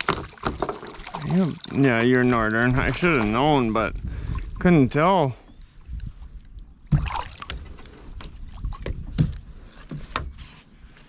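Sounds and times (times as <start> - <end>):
fish flopping: 0.0 - 4.6
knocks and thumps in a boat: 0.0 - 4.7, 5.5 - 11.0.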